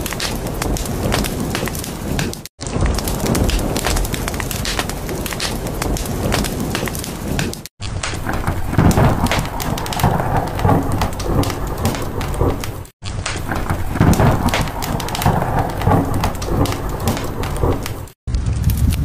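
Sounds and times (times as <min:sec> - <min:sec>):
low rumbling thunder: 0:00.0 - 0:07.5, 0:08.1 - 0:19.0
dense crackling: 0:00.0 - 0:19.0
steady rain: 0:00.0 - 0:19.0.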